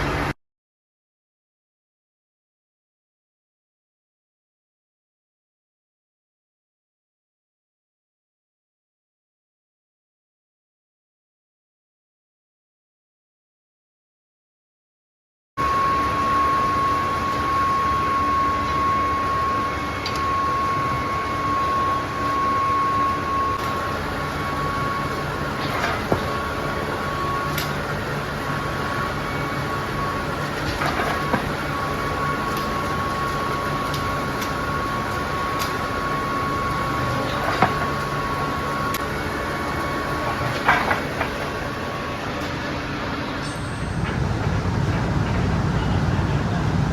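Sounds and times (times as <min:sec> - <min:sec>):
continuous machine whine: 0:00.0 - 0:00.4, 0:15.6 - 0:46.9
machinery mechanical drone: 0:15.6 - 0:46.9.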